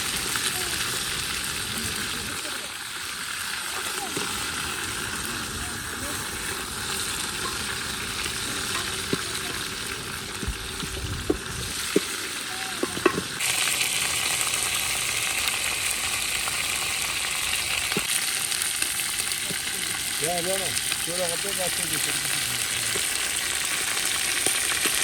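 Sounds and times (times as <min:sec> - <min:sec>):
food sizzling in hot oil: 0:00.0 - 0:25.0
utensil knocking against pot: 0:12.8 - 0:13.3.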